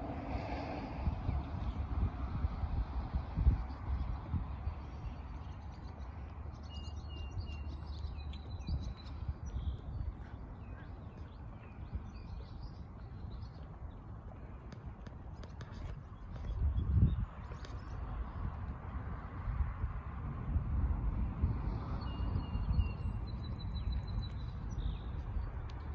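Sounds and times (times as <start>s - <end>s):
small birds chirping: 3.6s - 18.3s, 22.0s - 25.9s.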